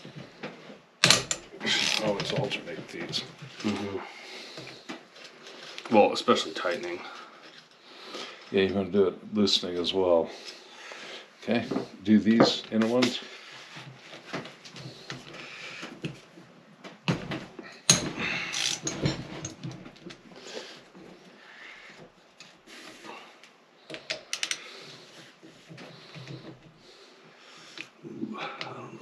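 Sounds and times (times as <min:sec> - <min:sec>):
wrench clicking and knocking on nuts: 0:01.0 - 0:02.0.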